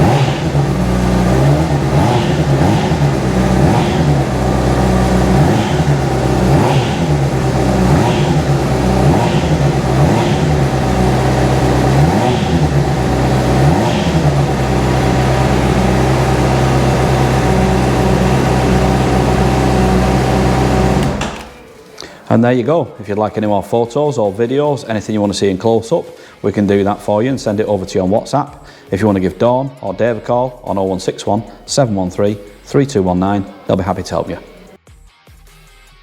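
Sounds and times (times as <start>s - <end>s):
motorcycle engine idling: 0.0s - 21.7s
motorcycle engine revving: 0.0s - 21.7s.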